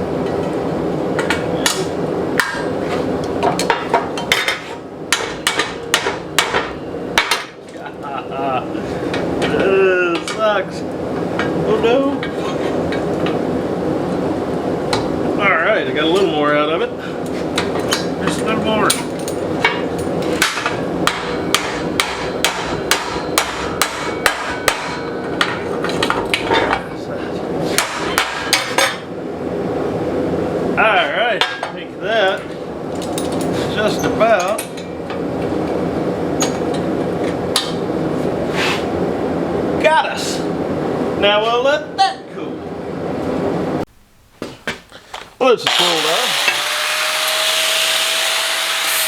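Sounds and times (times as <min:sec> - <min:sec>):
hammer striking steel on anvil: 0:05.1 - 0:07.5, 0:20.4 - 0:25.7, 0:27.8 - 0:29.0.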